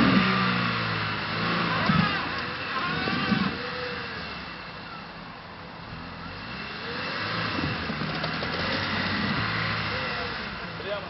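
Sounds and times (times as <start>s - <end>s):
vehicle engine revving: 0.0s - 11.0s.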